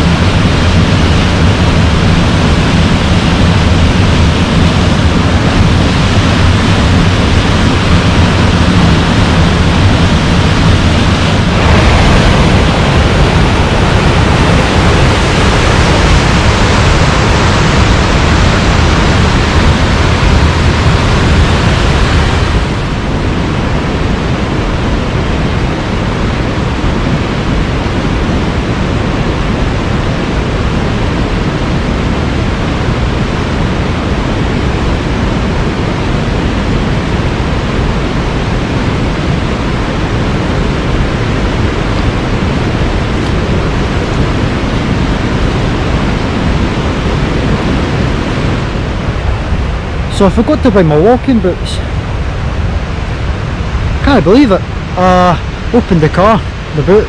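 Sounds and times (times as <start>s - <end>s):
waterfall rushing: 0.0s - 23.7s, 35.2s - 57.0s.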